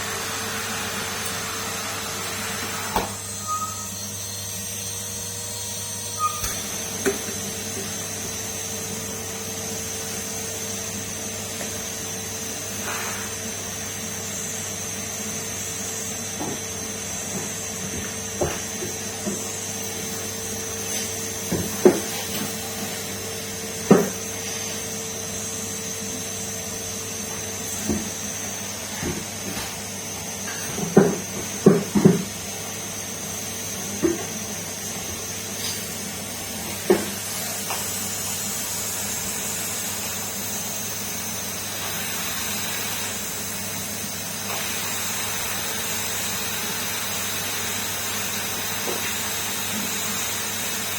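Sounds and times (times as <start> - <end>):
vacuum cleaner whining: 0.0 - 50.9.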